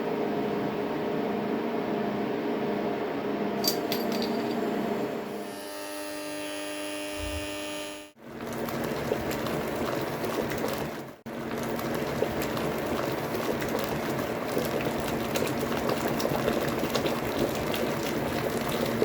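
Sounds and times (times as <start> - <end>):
faint steady hum: 3.6 - 8.2
water boiling and bubbling: 8.2 - 19.0.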